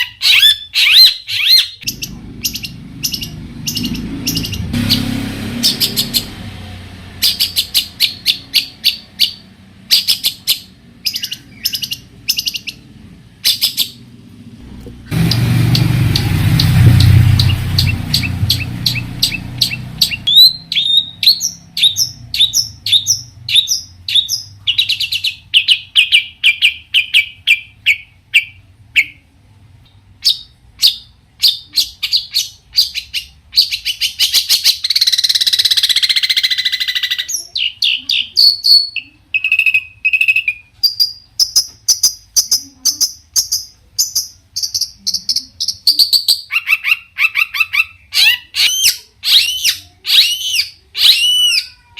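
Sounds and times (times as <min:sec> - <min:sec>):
shrike singing varied chirps: 0:00.0 - 0:06.6, 0:07.2 - 0:14.0, 0:15.1 - 0:29.2.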